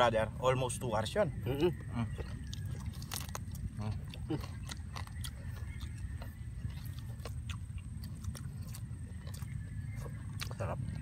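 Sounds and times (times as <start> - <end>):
crunchy chewing: 0.8 - 11.0.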